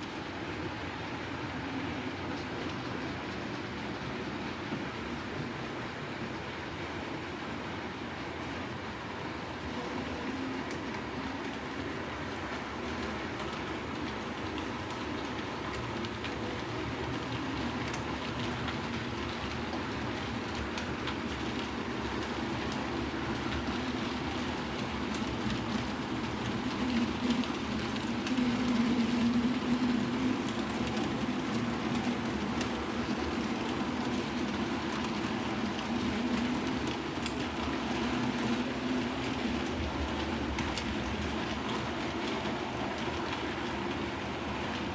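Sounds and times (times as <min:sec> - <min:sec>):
wheels clicking over rail joints: 0:09.6 - 0:44.9.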